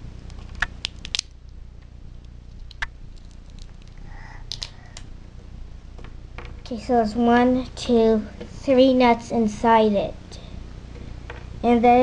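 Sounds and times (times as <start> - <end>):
peanut shell cracking: 0.3 - 1.4, 2.2 - 5.1.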